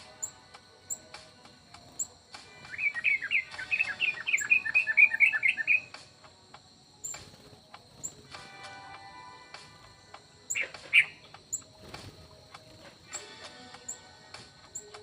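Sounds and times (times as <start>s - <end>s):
rapid bird chirps: 0.0s - 15.0s
very high bird chips: 1.7s - 6.0s, 9.7s - 15.0s.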